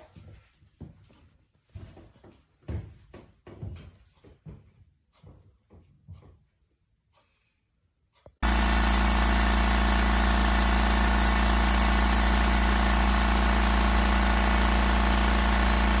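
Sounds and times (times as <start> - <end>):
air compressor motor humming: 8.4 - 16.0.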